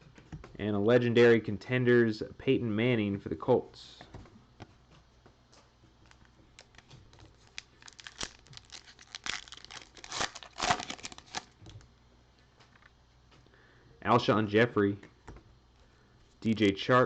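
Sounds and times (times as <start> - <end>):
plastic wrapper tearing and crinkling: 6.1 - 11.8.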